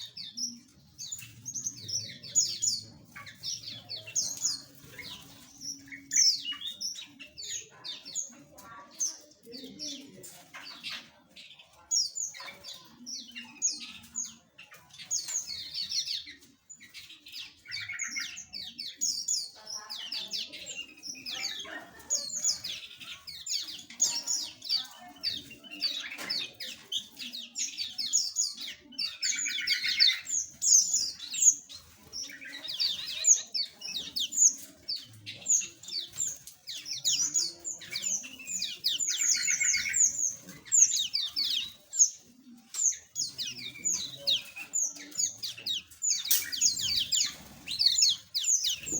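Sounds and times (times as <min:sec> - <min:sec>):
small birds chirping and twittering: 0:00.0 - 0:48.9.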